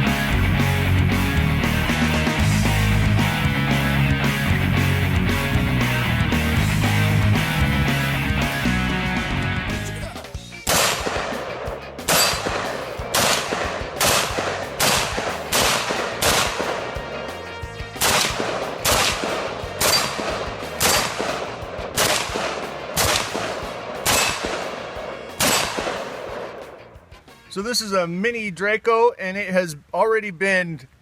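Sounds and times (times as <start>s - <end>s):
rifle shots with ringing tail: 10.6s - 17.2s, 18.0s - 26.9s.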